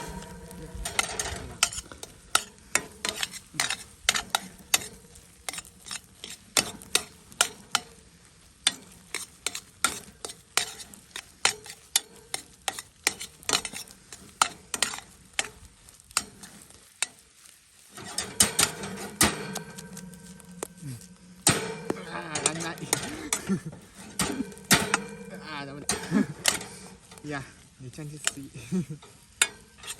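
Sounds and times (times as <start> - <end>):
food sizzling: 0.0 - 29.9
metal spatula scraping pan: 0.0 - 29.9.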